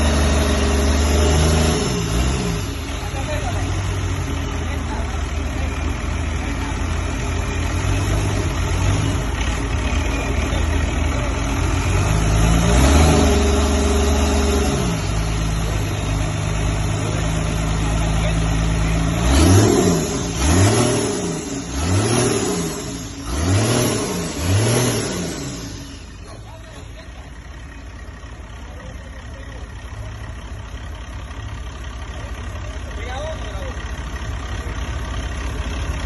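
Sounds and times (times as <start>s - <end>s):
diesel engine idling and revving: 0.0s - 36.0s.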